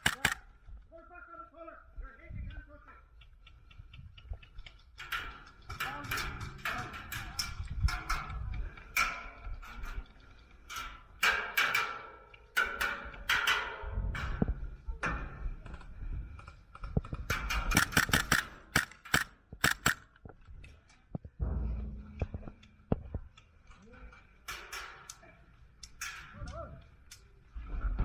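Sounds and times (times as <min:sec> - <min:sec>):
airsoft guns firing: 0:00.0 - 0:00.4, 0:17.7 - 0:20.0.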